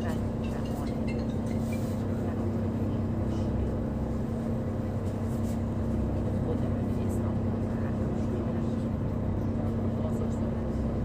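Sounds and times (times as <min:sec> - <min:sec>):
ferry engine droning: 0:00.0 - 0:11.0.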